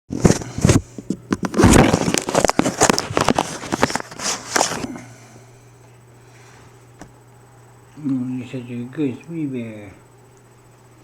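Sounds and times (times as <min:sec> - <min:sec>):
rustling and scraping: 0:00.1 - 0:05.0
faint low hum: 0:00.2 - 0:11.0.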